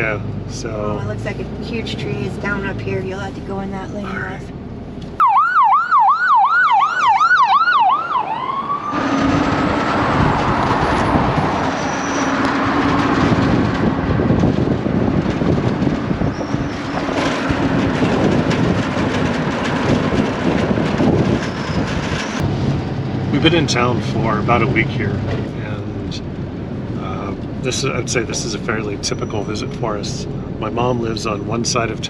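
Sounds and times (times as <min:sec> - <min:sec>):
emergency vehicle siren yelping: 0:05.2 - 0:14.4
low hum: 0:08.4 - 0:32.0.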